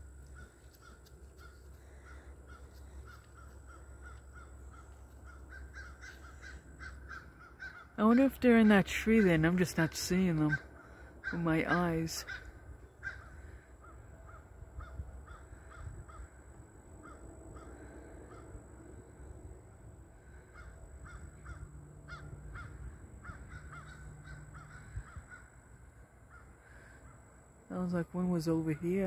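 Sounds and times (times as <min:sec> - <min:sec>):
faint distant birds calling: 0:00.0 - 0:29.0
faint low drone: 0:10.2 - 0:28.9.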